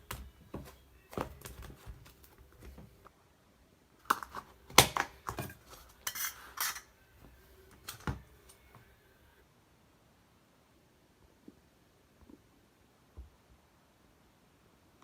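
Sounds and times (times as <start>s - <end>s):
utensil clinking against container: 5.2s - 6.9s.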